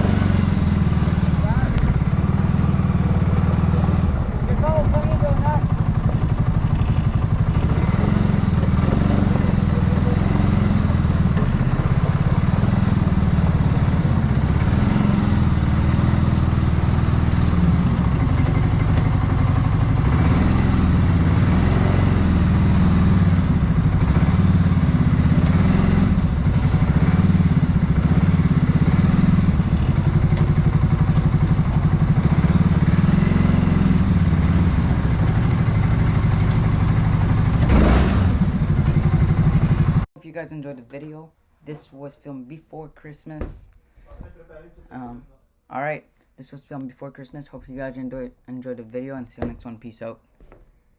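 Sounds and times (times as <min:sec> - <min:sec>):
snowblower engine running: 0:00.0 - 0:40.1.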